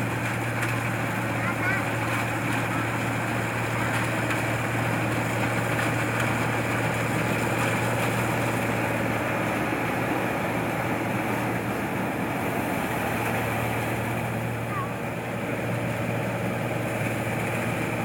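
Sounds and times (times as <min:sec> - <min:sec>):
combine harvester engine running: 0:00.0 - 0:18.0.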